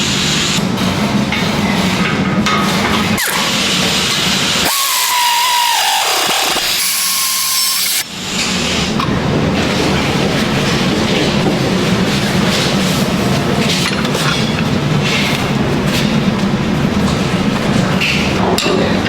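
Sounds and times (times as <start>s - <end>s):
metalworking power tool: 3.1s - 8.1s
steady whine: 4.6s - 8.1s.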